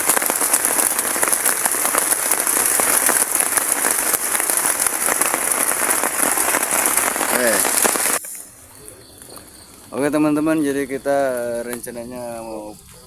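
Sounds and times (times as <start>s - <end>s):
heavy rain: 0.0s - 8.6s.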